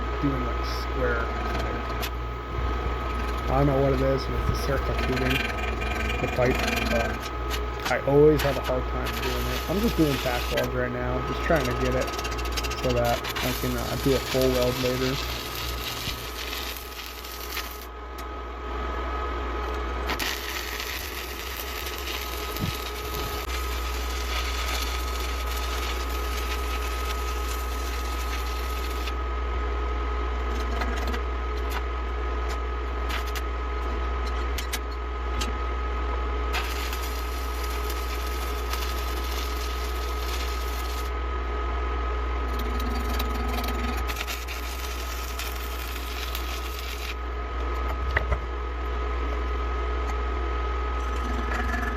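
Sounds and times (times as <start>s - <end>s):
welding crackle: 0.0s - 17.9s, 20.0s - 29.2s, 32.4s - 33.5s, 36.4s - 41.2s, 42.4s - 48.4s
steady low hum: 0.0s - 51.9s.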